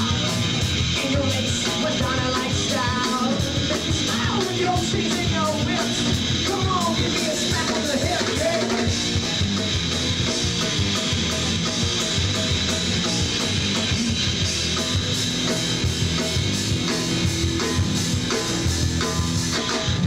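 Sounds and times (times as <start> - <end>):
drums: 0.0 - 20.0
electric guitar: 0.0 - 20.0
pitch-bending guitar lead line: 0.0 - 20.0.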